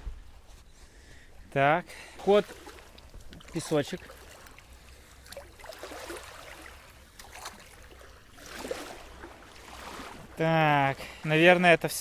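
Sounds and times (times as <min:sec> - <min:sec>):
seawater sloshing around legs: 0:02.2 - 0:10.4.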